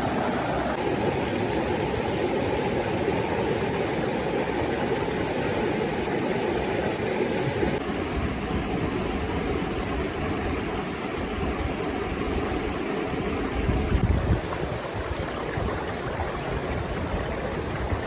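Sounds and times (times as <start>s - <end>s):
waterfall roaring: 0.0s - 7.8s.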